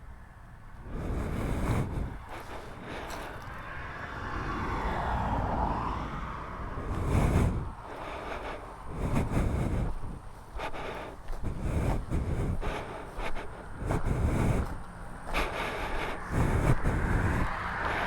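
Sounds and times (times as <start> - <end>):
wind buffeting microphone: 0.8 - 18.0.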